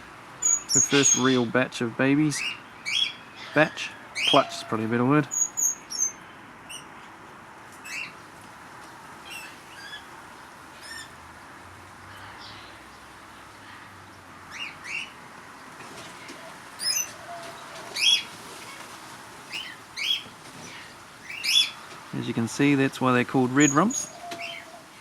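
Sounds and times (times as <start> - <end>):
parrots chirping: 0.0 - 1.6, 2.3 - 6.9, 7.8 - 8.2, 9.2 - 10.1, 10.8 - 11.2, 14.5 - 15.2, 16.2 - 18.8, 19.5 - 21.9, 23.4 - 25.0.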